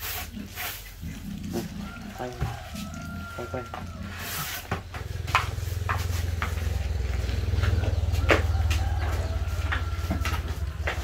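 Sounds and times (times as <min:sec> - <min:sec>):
low motor rumble: 0:01.1 - 0:11.0
sharp knocks and taps: 0:04.7 - 0:11.0.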